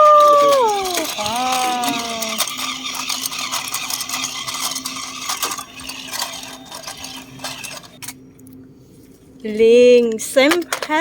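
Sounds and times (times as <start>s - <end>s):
toy motors and gears whirring: 0.0s - 8.2s.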